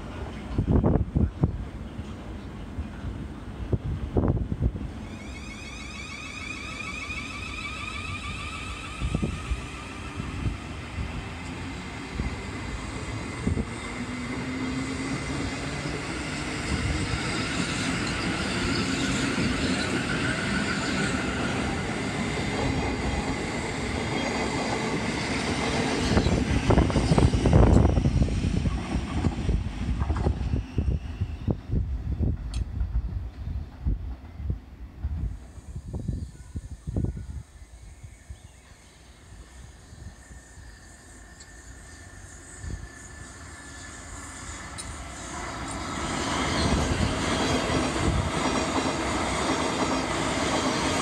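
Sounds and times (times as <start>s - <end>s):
train wheels rumbling on rails: 0.0s - 37.5s, 38.6s - 51.0s
electric train motor whine: 5.0s - 22.2s, 38.6s - 48.3s.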